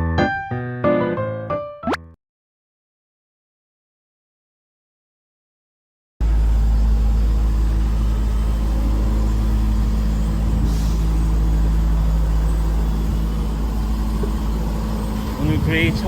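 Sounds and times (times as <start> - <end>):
car engine and road noise: 6.2 - 16.0.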